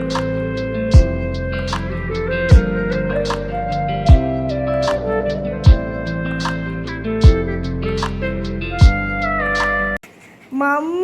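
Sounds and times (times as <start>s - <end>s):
synth notes over a beat: 0.0s - 10.0s
deep falling bass hits: 0.9s - 6.5s, 7.2s - 9.4s.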